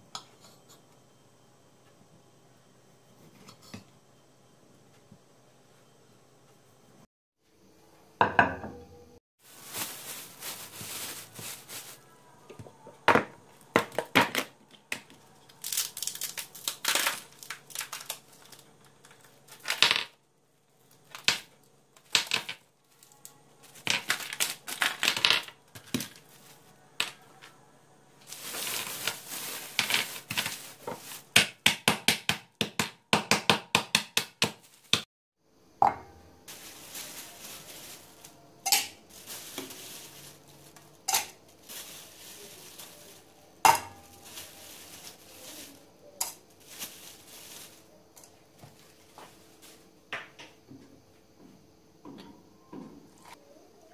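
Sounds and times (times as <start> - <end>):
scraping and rustling: 9.4 - 12.2, 28.2 - 31.3, 39.1 - 47.9
dishes and utensils clinking: 41.0 - 41.4.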